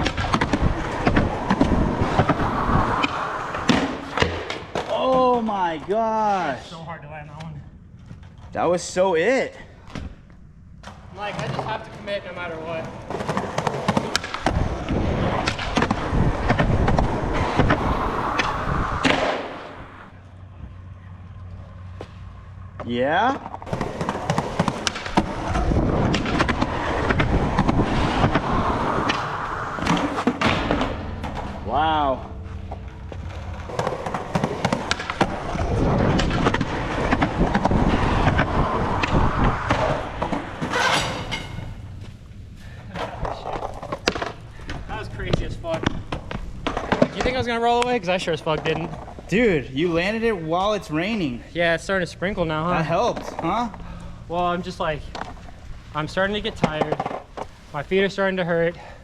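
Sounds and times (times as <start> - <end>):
skateboard wheels rolling on concrete: 0.0 - 59.0
skateboard clacks and knocks: 12.8 - 19.4, 23.5 - 31.5, 33.3 - 41.8, 45.7 - 47.4.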